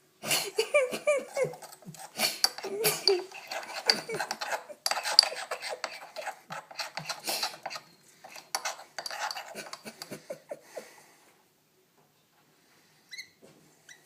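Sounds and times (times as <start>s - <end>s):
spoon clinking against a dish: 2.4s - 10.2s.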